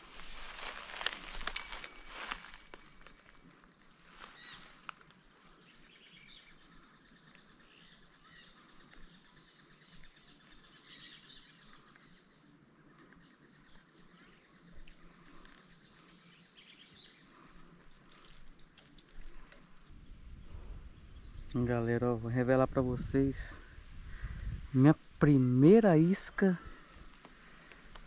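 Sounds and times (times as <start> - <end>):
faint outdoor ambience: 0.0 - 28.0.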